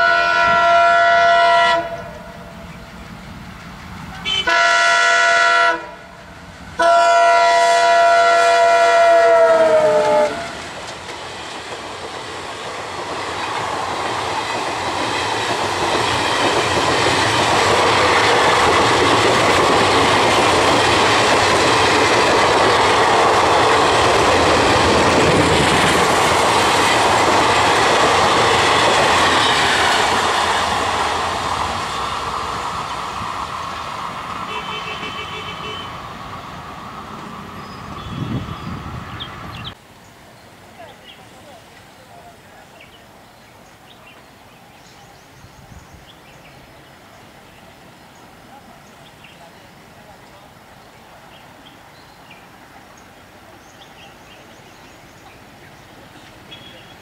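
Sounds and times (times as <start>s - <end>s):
locomotive horn blasts: 0.0s - 2.4s, 4.2s - 6.1s, 6.8s - 10.6s, 34.4s - 36.1s, 37.9s - 38.8s
train wheels clattering on rails: 10.0s - 34.6s.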